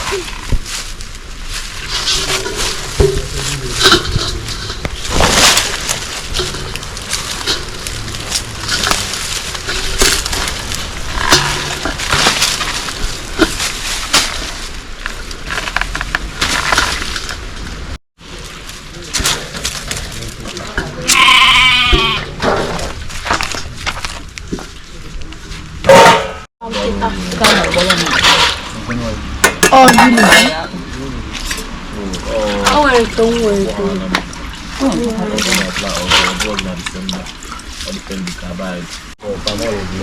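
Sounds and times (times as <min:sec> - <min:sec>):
knocks and clatter: 0:01.8 - 0:14.5
goat bleating: 0:21.0 - 0:22.4.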